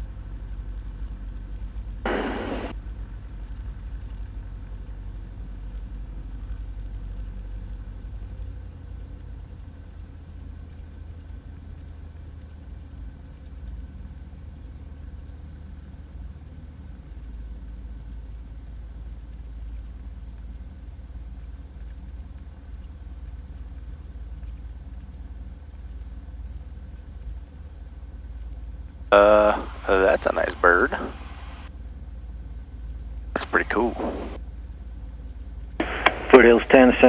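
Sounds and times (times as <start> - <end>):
aircraft engine droning: 0.0 - 9.2, 28.5 - 35.1, 35.8 - 37.0
faint high-pitched whine: 0.0 - 37.0
short burst of noise: 2.1 - 2.7, 29.1 - 31.7, 33.4 - 34.4, 35.8 - 37.0.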